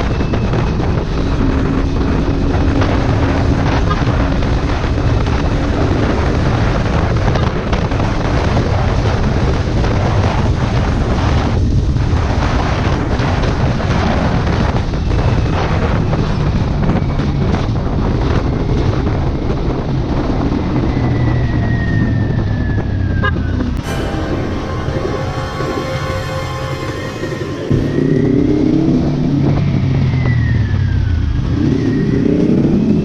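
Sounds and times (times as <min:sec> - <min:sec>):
wind noise on microphone: 0:00.0 - 0:23.8.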